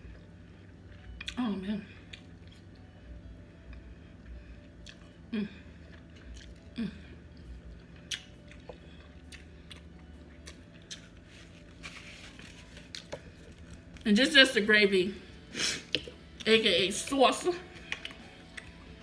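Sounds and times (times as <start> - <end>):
chewing with wet crunches: 2.0 - 2.9, 3.6 - 11.8, 17.7 - 19.0.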